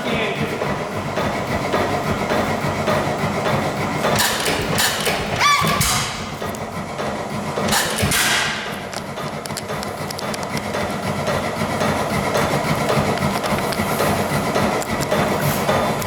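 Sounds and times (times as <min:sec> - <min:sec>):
gas engine thumping rumble: 0:00.0 - 0:16.0
short high squeal: 0:05.4 - 0:06.0.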